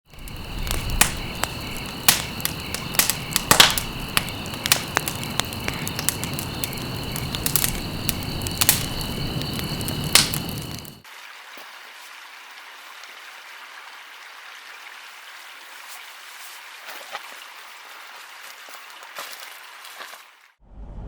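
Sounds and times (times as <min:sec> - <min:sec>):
campfire crackling: 0:00.1 - 0:11.0.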